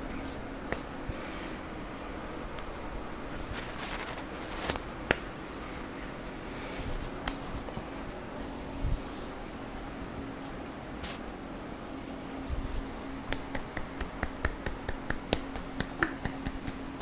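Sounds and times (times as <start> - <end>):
hands rubbing skin: 0.1 - 7.9, 10.4 - 11.3, 12.5 - 17.0
slaps on skin: 13.3 - 16.9.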